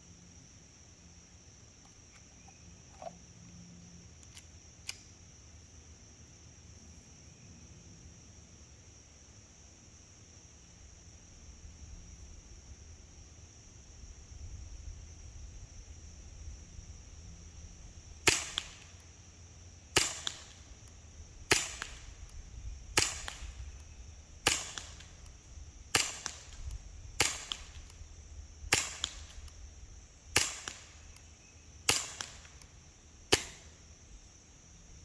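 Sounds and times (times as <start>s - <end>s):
air pistol pops: 18.3s - 19.1s, 20.0s - 25.4s, 26.0s - 28.0s, 28.7s - 29.6s, 30.3s - 31.3s, 31.9s - 33.7s.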